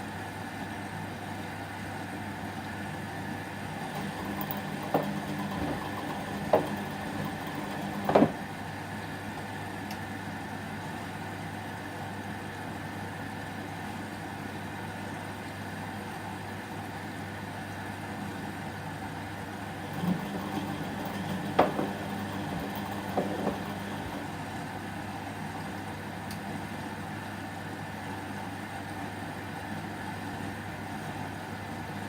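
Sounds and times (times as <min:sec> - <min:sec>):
washing machine motor humming: 0:03.0 - 0:09.8, 0:18.6 - 0:27.6
washing machine drum knocks: 0:03.8 - 0:08.4, 0:19.9 - 0:24.3.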